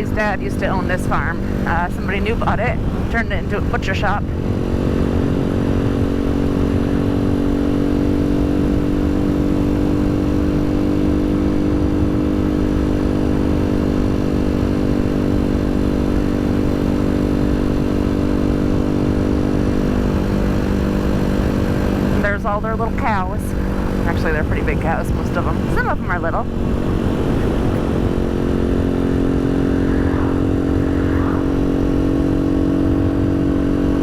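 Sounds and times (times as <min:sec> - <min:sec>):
motorcycle engine running: 0:00.0 - 0:34.0
wind rumbling on microphone: 0:00.0 - 0:34.0.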